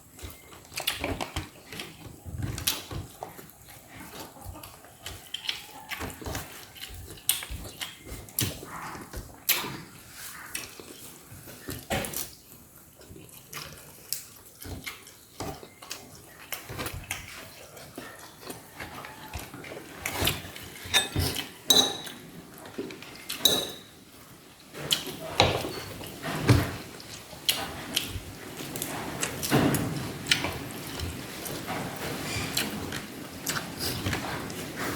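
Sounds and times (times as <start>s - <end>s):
dishes and cutlery clinking: 18.5s - 24.0s, 24.8s - 26.8s.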